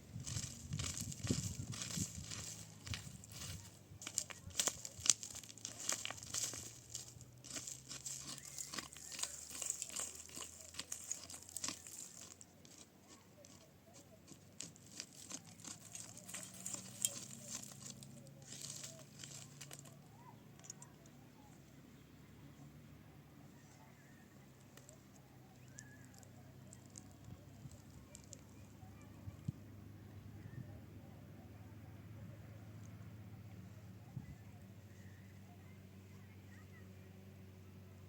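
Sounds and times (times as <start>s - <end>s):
crackling and crunching material: 0.0s - 20.9s, 24.6s - 29.5s.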